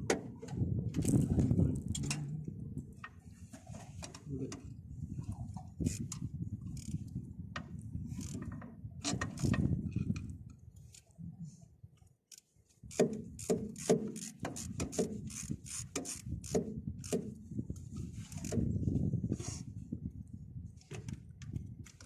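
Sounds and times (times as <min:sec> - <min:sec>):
low rumbling clatter: 0:00.0 - 0:07.0
ratchet wrench clicking: 0:12.3 - 0:17.2.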